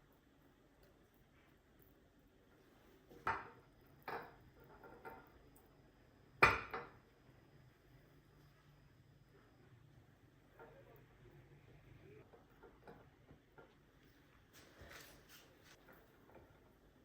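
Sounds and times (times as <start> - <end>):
objects knocking and clattering: 3.1 - 5.6, 6.4 - 7.1, 12.2 - 13.9.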